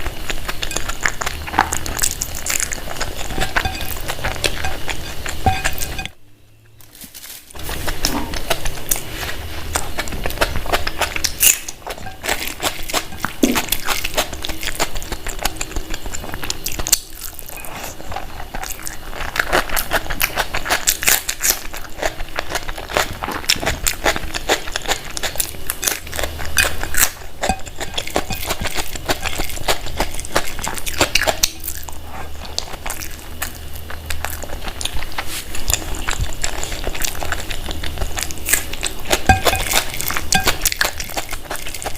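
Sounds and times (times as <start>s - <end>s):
biting and chewing food: 0.0s - 6.2s, 6.8s - 41.9s.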